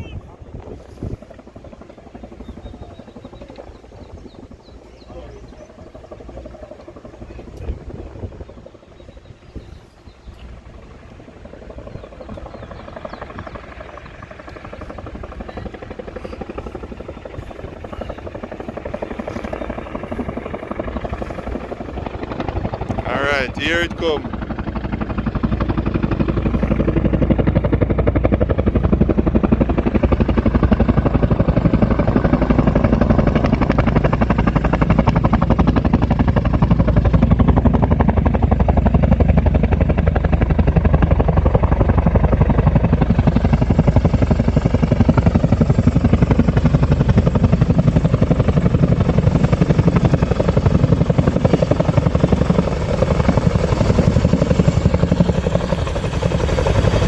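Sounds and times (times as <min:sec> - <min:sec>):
helicopter rotor beating: 0:00.0 - 0:57.0.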